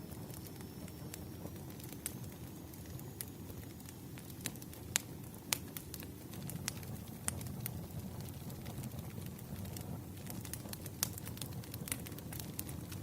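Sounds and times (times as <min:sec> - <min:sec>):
fire low steady rush: 0:00.0 - 0:13.0
firewood popping and snapping: 0:02.9 - 0:13.0.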